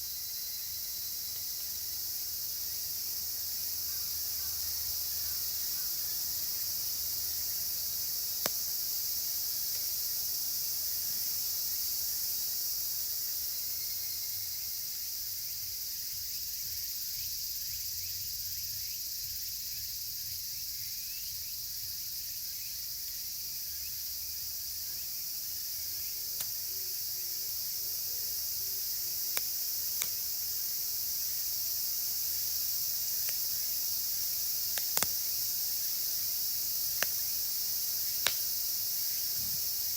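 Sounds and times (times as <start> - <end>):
cicadas chorus: 0.0 - 39.9
campfire popping: 7.4 - 11.4, 26.3 - 26.7, 27.6 - 30.9, 32.8 - 36.1, 36.7 - 39.9.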